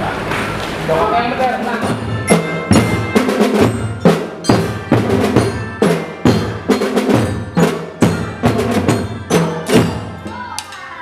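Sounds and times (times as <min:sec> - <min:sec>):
snare and bass drums: 0:01.6 - 0:10.2
ringing pitched melody: 0:01.8 - 0:10.5.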